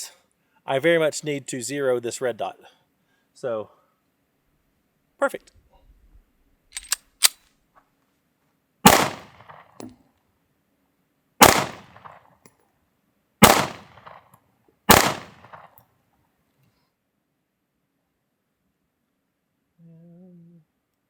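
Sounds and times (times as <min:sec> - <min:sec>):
sharp click: 0:06.7 - 0:07.4
pistol shots with echo: 0:08.8 - 0:09.8, 0:11.4 - 0:12.2, 0:13.4 - 0:14.3, 0:14.9 - 0:15.8.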